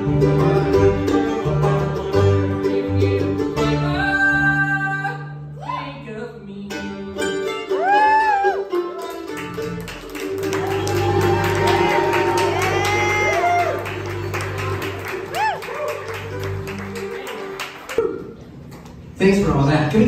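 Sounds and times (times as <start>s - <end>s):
banjo: 0.0s - 5.4s, 6.6s - 17.8s
bluegrass band playing: 0.0s - 5.6s, 6.6s - 18.0s
walking bass line: 9.6s - 17.2s.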